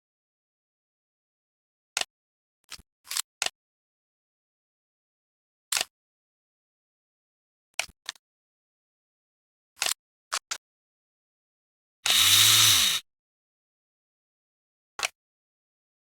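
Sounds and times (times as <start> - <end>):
loud noisy rising and falling sound: 12.1 - 13.0.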